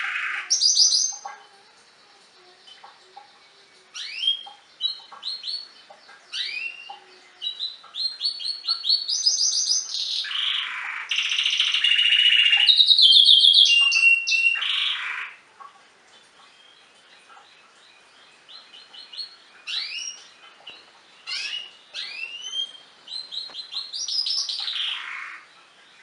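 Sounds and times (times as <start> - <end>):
canary singing trills: 0.0 - 26.0.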